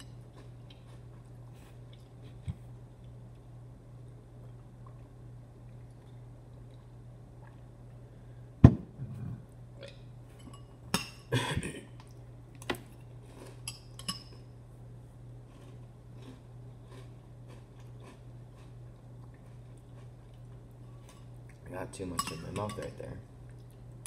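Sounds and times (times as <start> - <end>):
metal spoon clinking in bowl: 22.1 - 22.9.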